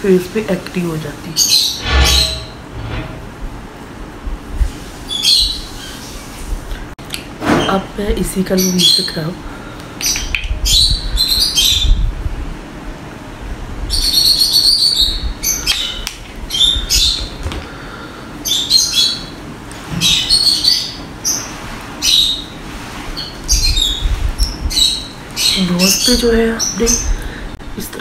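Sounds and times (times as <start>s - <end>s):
small birds chirping: 8.2s - 9.4s, 10.0s - 12.1s, 13.9s - 27.6s.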